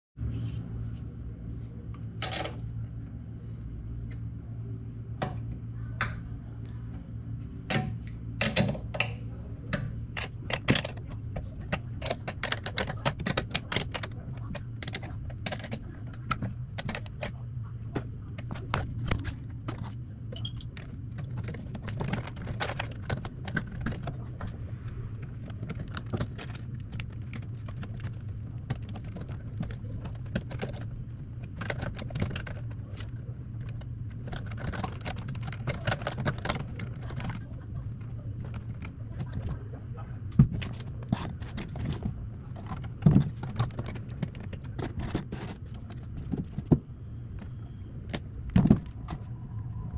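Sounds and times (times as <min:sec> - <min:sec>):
steady low hum: 0:00.2 - 0:49.9
tools and metal parts clinking: 0:20.3 - 0:20.8.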